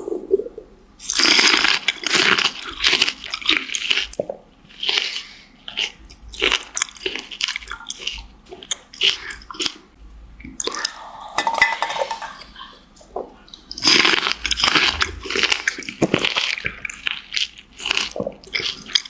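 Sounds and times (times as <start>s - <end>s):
person crunching crisp fruit: 1.0s - 10.0s, 13.6s - 19.0s.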